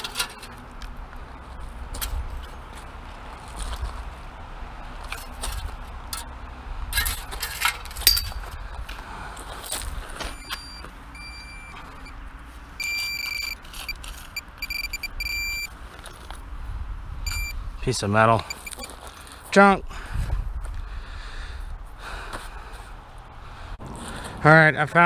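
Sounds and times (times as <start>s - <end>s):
metal detector beeps: 10.3s - 12.2s, 12.8s - 15.7s, 17.3s - 17.6s, 18.4s - 19.0s.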